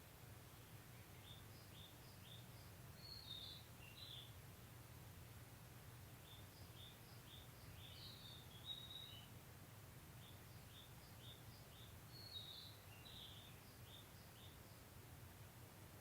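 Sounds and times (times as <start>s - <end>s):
bird chirping: 0.5s - 4.4s, 6.0s - 9.4s, 10.1s - 15.0s.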